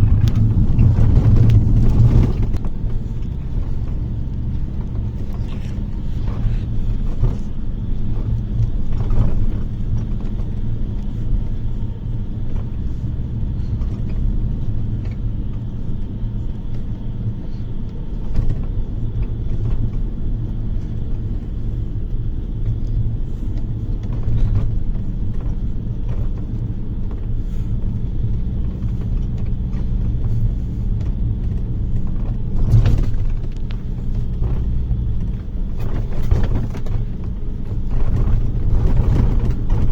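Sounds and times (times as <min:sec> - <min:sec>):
knocks and rattles: 0:00.0 - 0:07.5, 0:28.7 - 0:39.9
bus engine and road rumble: 0:00.0 - 0:39.9.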